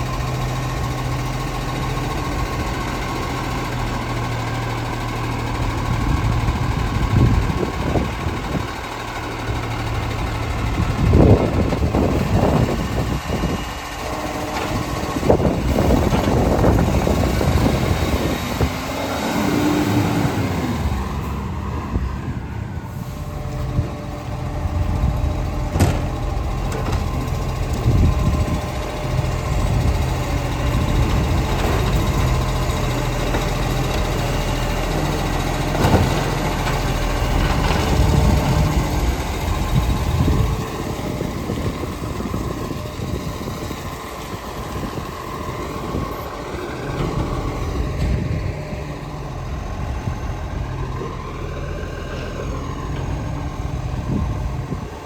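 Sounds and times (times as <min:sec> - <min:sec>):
garbage truck engine running: 0:00.0 - 0:55.0.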